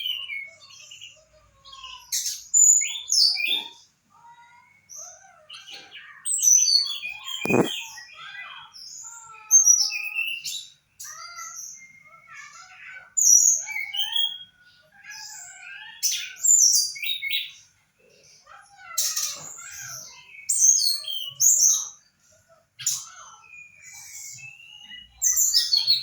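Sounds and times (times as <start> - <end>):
songbird chirping and trilling: 0.0 - 26.0
sharp knock: 7.4 - 7.7.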